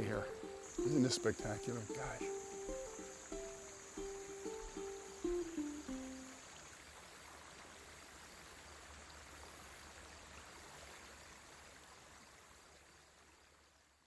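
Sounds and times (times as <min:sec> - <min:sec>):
stream running water: 0:00.0 - 0:14.0.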